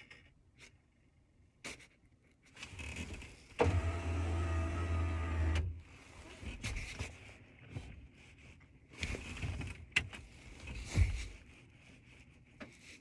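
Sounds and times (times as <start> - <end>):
power window motor humming: 3.6 - 5.7.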